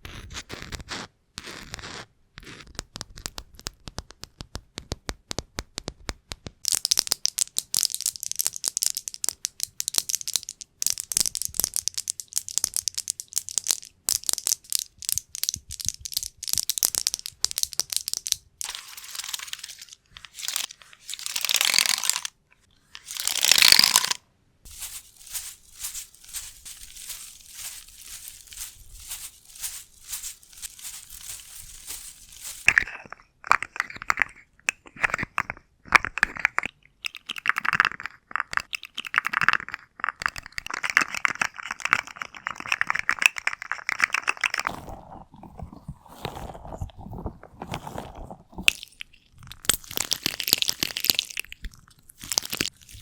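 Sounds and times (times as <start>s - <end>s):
crinkly scratching: 17.2s - 22.3s, 22.9s - 33.1s, 40.7s - 48.9s
swishing rubs: 24.7s - 32.7s.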